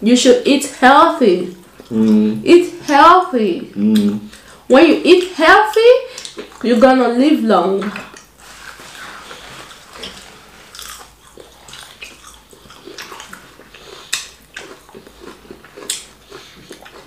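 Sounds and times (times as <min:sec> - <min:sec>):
person chewing food: 0:01.6 - 0:02.4, 0:06.1 - 0:06.7, 0:07.9 - 0:17.0.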